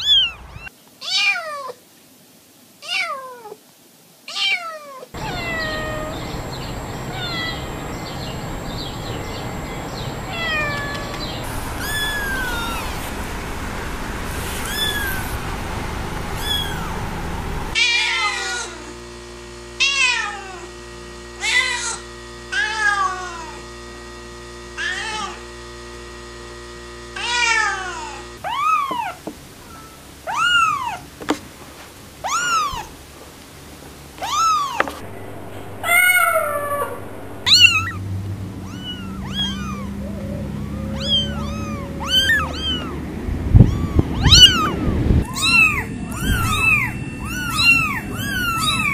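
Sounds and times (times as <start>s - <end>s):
kittens mewing: 4.4s - 8.4s, 10.2s - 15.5s, 16.4s - 17.0s, 34.2s - 38.0s, 38.6s - 48.9s.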